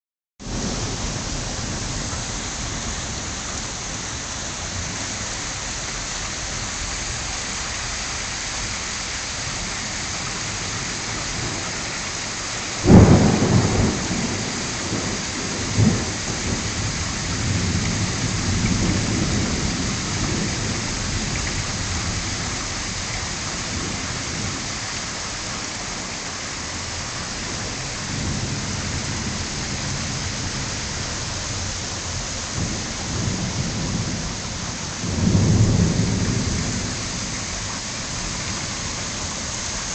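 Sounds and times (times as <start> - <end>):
thunderclap rolling into rumbling: 0.4 - 4.1, 12.8 - 24.7, 27.5 - 39.6
heavy rain falling: 0.4 - 39.9.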